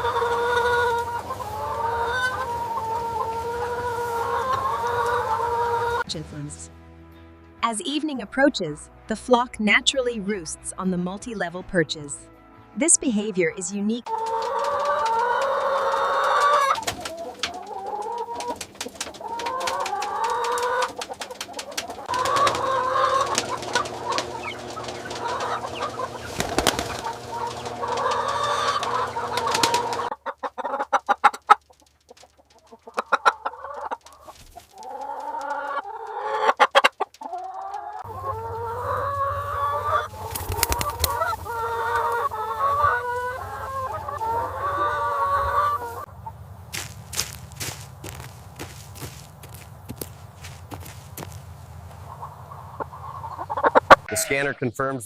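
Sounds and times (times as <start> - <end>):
chickens clucking: 0.0 - 6.1, 13.6 - 54.8.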